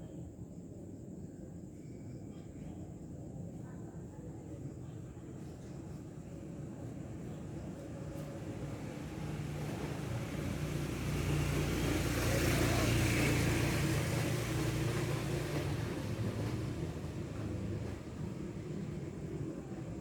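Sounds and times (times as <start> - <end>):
vehicle passing by: 8.8 - 18.2.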